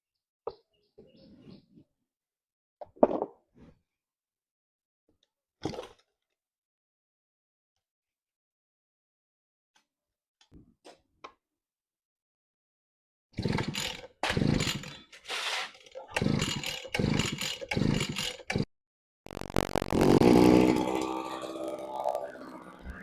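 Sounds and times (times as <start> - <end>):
brush cutter engine revving: 19.3 - 22.7.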